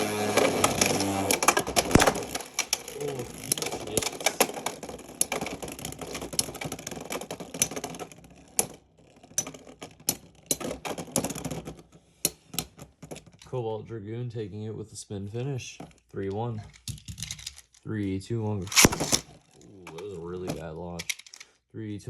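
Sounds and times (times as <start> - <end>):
spinning tops clashing and rattling: 18.7 - 19.2.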